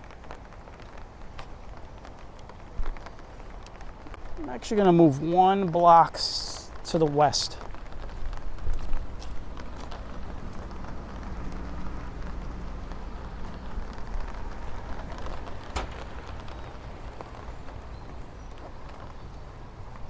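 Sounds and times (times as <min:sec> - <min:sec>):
footsteps on pavement: 0:00.0 - 0:04.8, 0:07.4 - 0:20.0
traffic rumble: 0:00.0 - 0:20.0
wind: 0:00.0 - 0:20.0.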